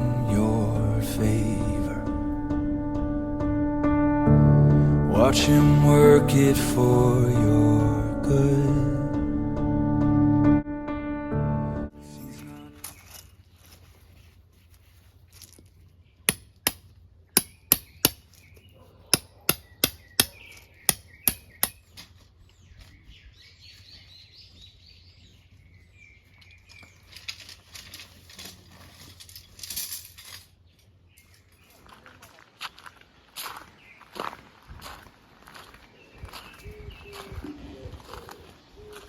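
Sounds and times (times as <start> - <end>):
rustling: 12.7 - 16.2, 26.5 - 31.8
birds chirping: 17.4 - 27.2, 35.7 - 39.0.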